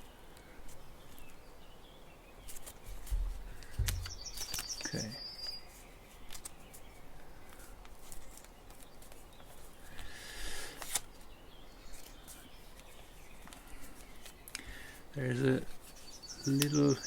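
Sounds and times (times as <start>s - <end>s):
paper rustling and crinkling: 2.4s - 14.6s
paper crease snap: 10.7s - 11.2s.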